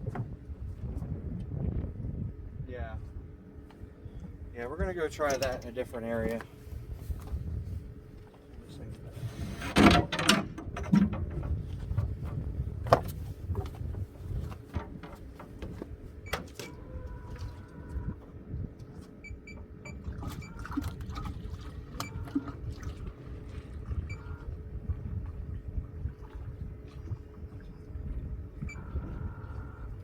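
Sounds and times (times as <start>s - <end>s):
gear clattering on boat: 4.2s - 30.0s
water sloshing and splashing: 10.6s - 30.0s.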